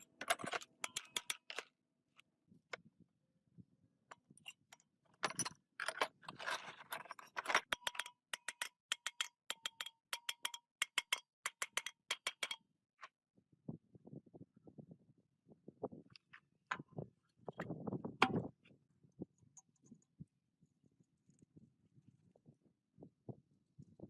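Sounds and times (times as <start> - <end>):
sharp metallic clicks and clinks: 0.0 - 1.7, 4.4 - 12.6.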